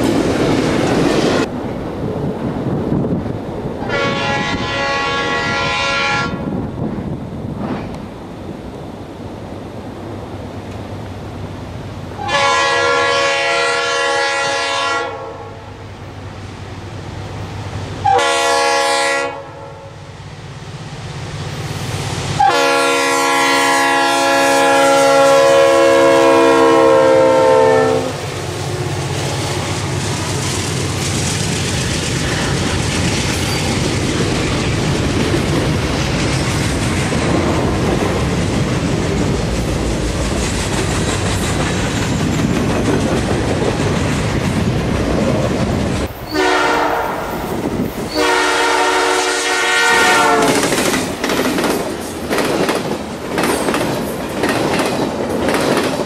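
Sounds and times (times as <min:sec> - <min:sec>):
locomotive air horn: 0:03.8 - 0:06.5, 0:12.2 - 0:15.8, 0:18.0 - 0:20.0, 0:22.4 - 0:28.3, 0:46.3 - 0:47.5, 0:48.1 - 0:50.7.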